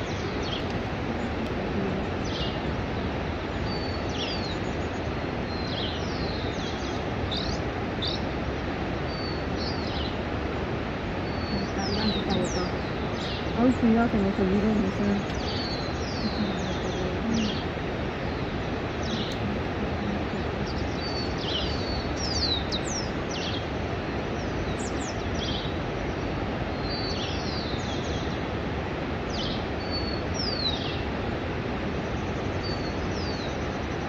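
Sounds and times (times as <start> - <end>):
steady background hiss: 0.0 - 34.0.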